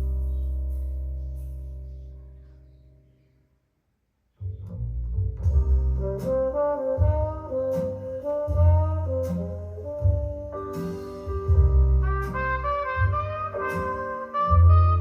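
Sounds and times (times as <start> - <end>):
walking double bass: 4.4 - 15.0
horn melody: 5.9 - 15.0.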